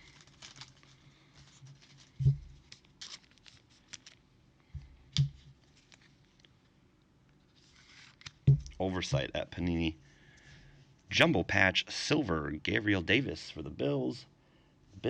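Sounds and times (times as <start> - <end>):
cards and plastic sleeves rustling: 0.0 - 6.6, 7.4 - 9.4.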